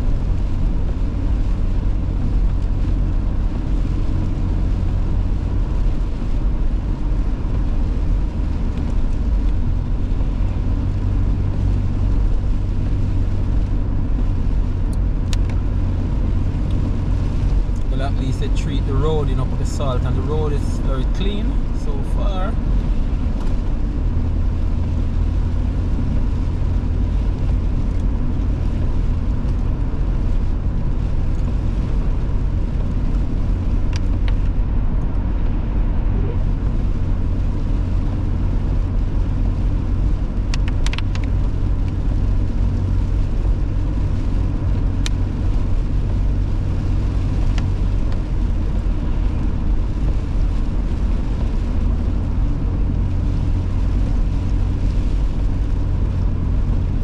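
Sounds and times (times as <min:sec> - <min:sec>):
car engine and tyres rumbling: 0:00.0 - 0:57.0.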